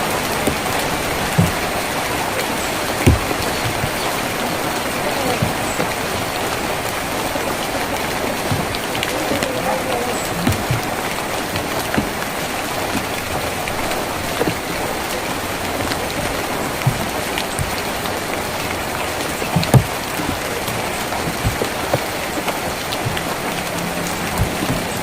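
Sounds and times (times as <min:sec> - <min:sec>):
heavy drops knocking on metal: 0:00.0 - 0:07.3
rain on a tin roof: 0:00.0 - 0:25.0.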